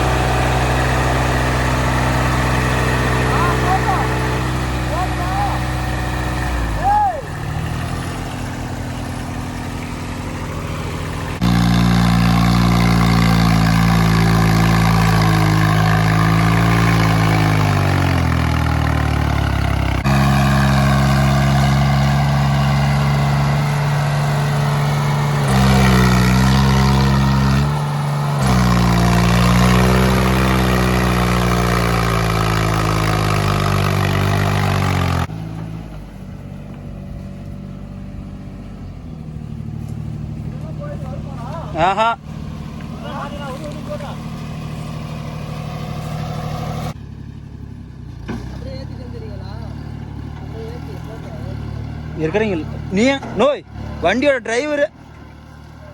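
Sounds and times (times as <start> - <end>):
diesel tractor engine straining: 0.0 - 55.9.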